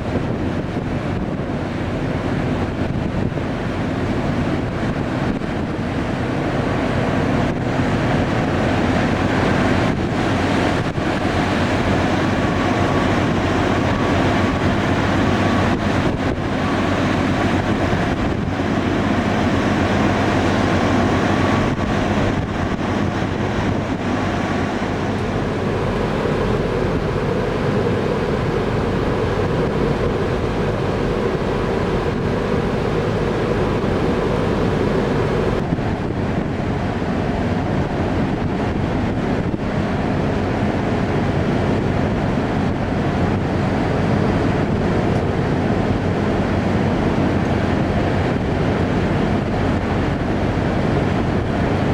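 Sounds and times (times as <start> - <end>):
wind and rough sea rushing: 0.0 - 51.9
wind on microphone: 0.0 - 51.9
low drone: 7.2 - 37.0.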